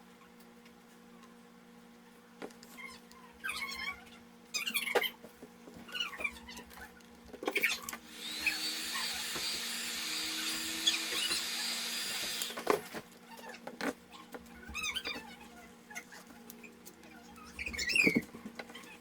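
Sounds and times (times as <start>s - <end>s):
hot-air gun blowing with whine: 8.0s - 12.8s.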